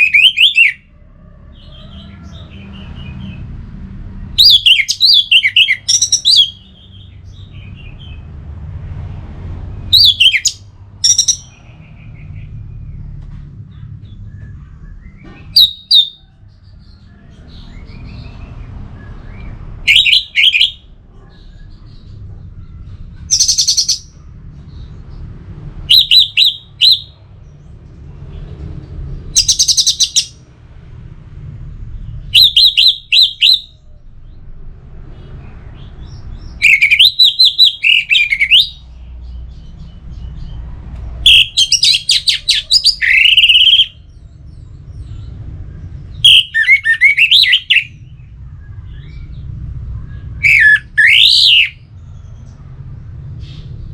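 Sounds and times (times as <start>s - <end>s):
thrush singing: 0.0s - 0.9s, 4.4s - 6.9s, 9.8s - 11.6s, 19.8s - 20.8s, 36.6s - 38.9s, 41.2s - 44.0s, 46.2s - 48.0s, 50.4s - 51.8s.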